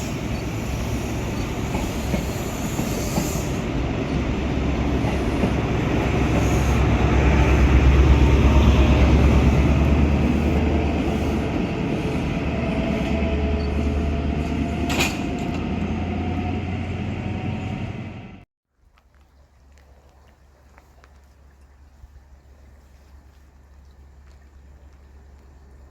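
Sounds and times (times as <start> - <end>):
train rumbling past: 0.0 - 18.5.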